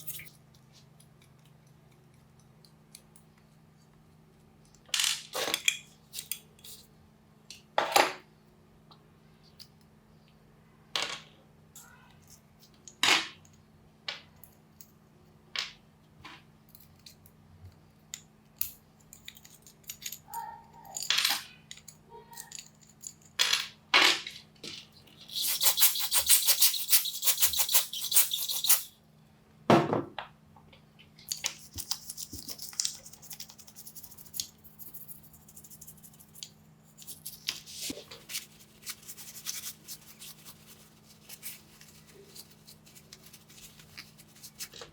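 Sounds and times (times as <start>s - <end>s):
small metal parts clinking: 18.6s - 23.4s
light scratching: 25.2s - 28.9s.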